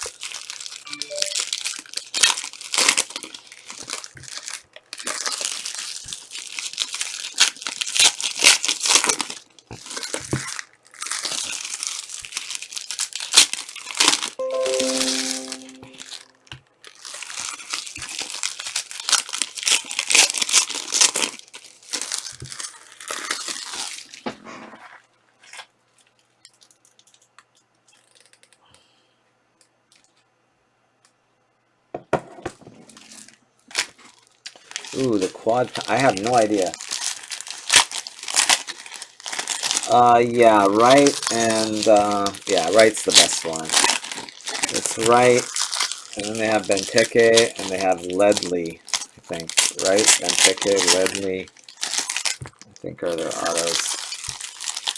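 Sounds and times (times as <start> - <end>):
card pack wrappers tearing and crinkling: 0.0 - 16.1, 16.8 - 24.2, 25.4 - 28.6, 33.0 - 54.9
short musical tone: 0.9 - 1.5, 14.4 - 16.2.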